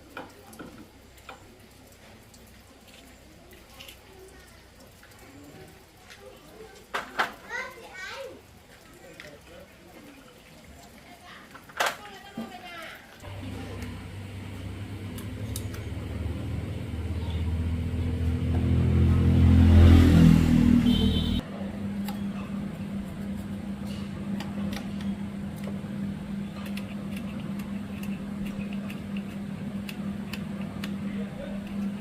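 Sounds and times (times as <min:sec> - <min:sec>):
low hum: 0:13.2 - 0:32.0
motor running: 0:20.9 - 0:32.0.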